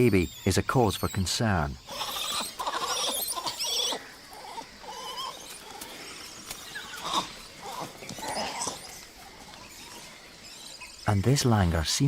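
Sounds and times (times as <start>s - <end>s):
monkeys squealing cries: 1.8s - 11.1s.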